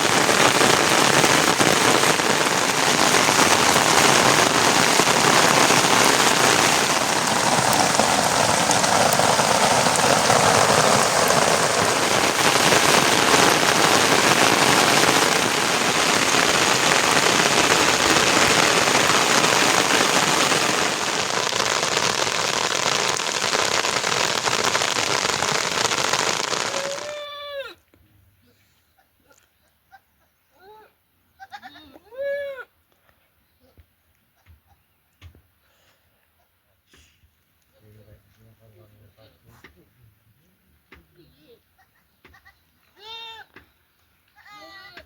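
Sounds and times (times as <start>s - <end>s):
heavy rain falling: 0.0s - 27.3s.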